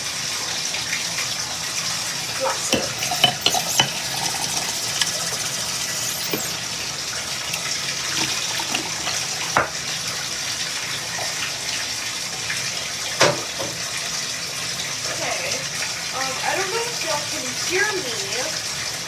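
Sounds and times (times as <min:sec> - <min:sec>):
water pouring into bathtub: 0:00.0 - 0:13.2.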